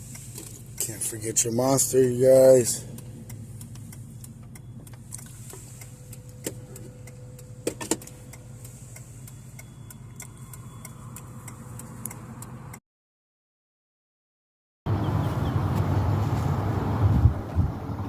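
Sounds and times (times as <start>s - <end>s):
regular ticking: 0.0s - 12.8s
vehicle engine and road noise: 0.0s - 12.8s, 14.9s - 18.0s.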